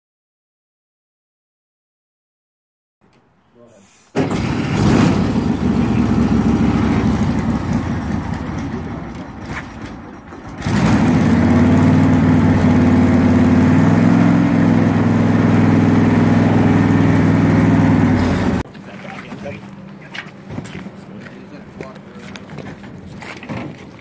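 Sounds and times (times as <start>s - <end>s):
vehicle engine running: 4.2s - 23.1s.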